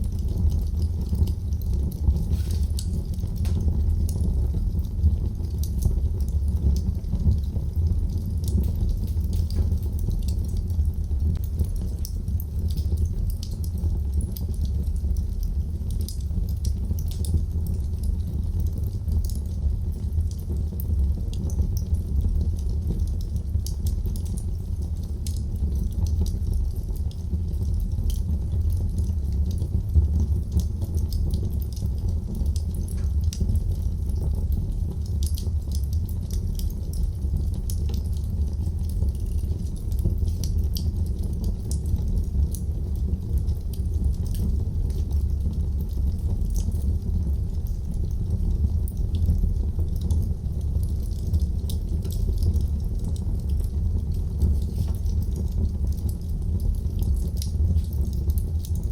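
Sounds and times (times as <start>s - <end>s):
fire crackling and popping: 0.0s - 58.9s
fire flames roaring: 24.9s - 58.7s.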